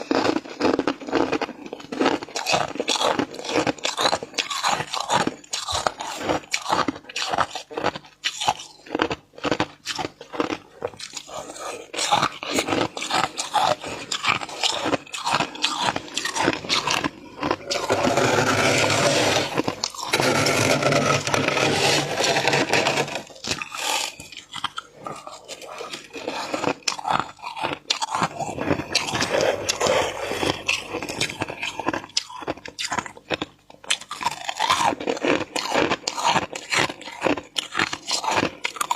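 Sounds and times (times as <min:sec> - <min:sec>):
crunching while eating: 0:00.0 - 0:38.9
frost being scraped: 0:11.5 - 0:32.0.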